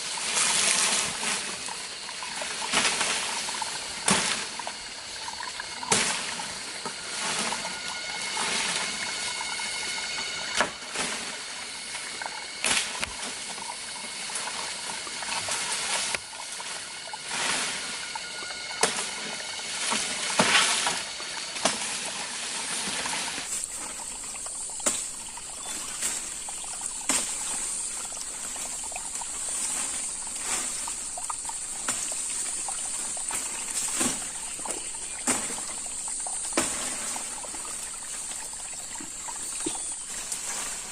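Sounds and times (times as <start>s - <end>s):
water trickling and splashing: 0.0s - 40.9s
steady high-pitched hum: 5.0s - 15.5s, 23.5s - 40.9s.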